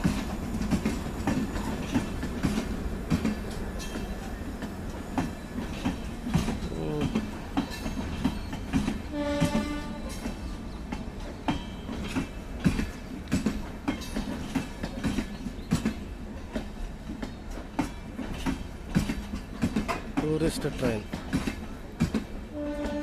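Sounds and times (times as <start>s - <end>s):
wheels clacking over rail joints: 0.0s - 23.0s
train horn: 9.1s - 10.2s, 22.5s - 23.0s.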